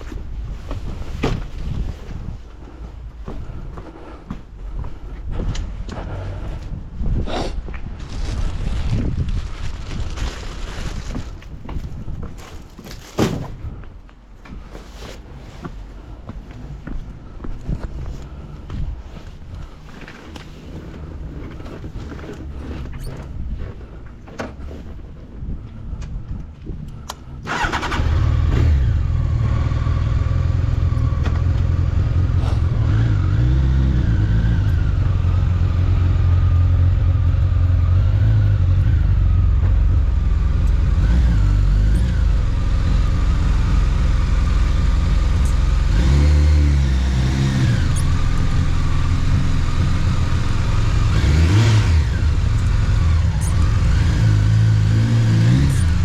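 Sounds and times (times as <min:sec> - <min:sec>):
motorcycle engine starting and running: 0:26.8 - 0:56.0.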